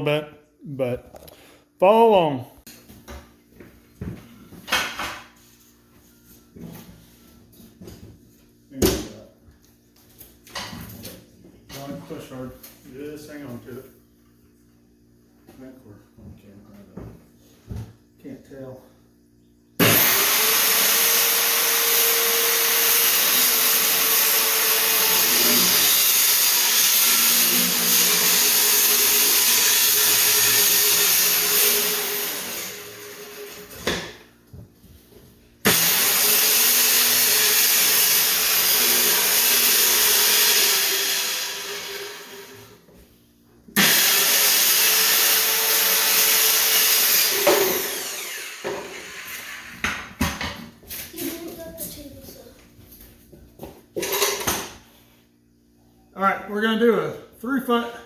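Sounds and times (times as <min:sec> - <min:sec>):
electric power tool running: 0:19.8 - 0:33.9, 0:35.6 - 0:42.8, 0:43.8 - 0:49.9.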